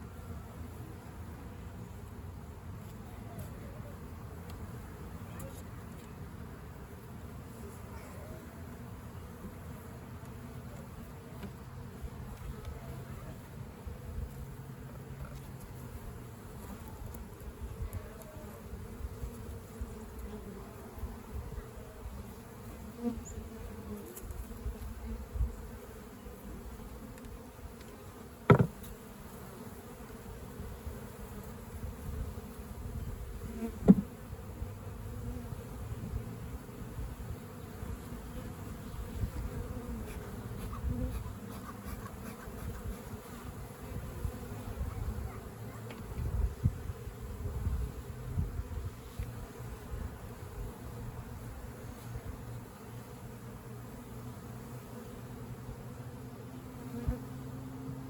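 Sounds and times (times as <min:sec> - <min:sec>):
honeybees buzzing: 0:00.0 - 0:58.0
sharp knocks: 0:28.5 - 0:28.8.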